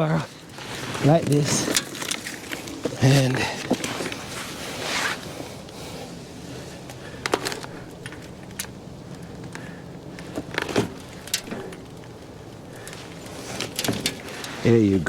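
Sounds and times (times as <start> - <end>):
wheelbarrow knocks and rattles: 10.2 - 14.8.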